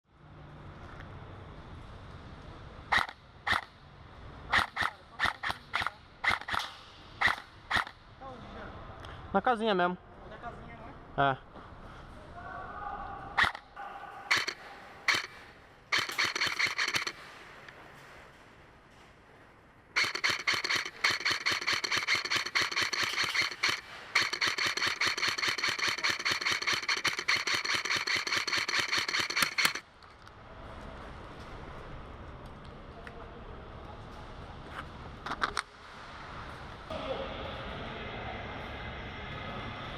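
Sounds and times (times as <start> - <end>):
airsoft gun firing single shots: 4.5 - 8.0, 14.3 - 17.2, 20.0 - 29.8.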